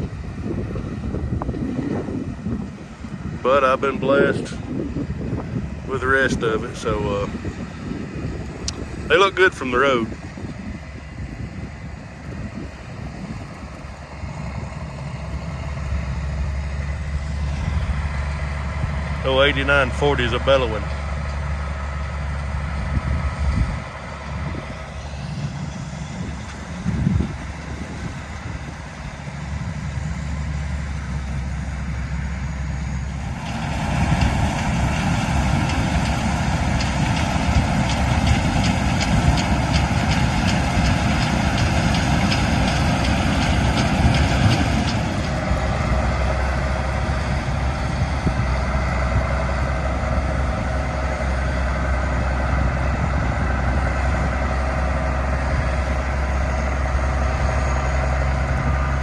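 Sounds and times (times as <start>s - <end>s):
diesel engine running: 0.0s - 59.0s
rushing mechanical noise: 0.0s - 59.0s.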